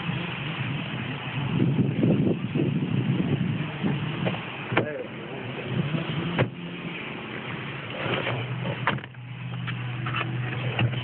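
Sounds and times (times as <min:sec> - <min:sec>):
car engine hum: 0:00.0 - 0:11.0
road noise: 0:00.0 - 0:11.0.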